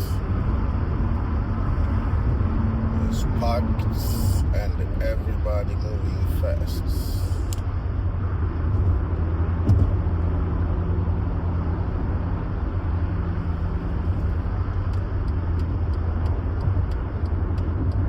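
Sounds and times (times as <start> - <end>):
car engine drone: 0.0 - 18.0
tyres on the road: 0.0 - 18.0
car bump: 9.6 - 10.2.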